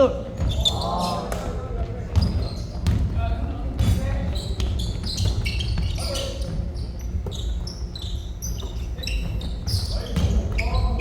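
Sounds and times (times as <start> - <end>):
sneakers squeaking on gym floor: 0.0 - 1.4, 2.1 - 11.0
basketball bouncing: 2.1 - 3.2.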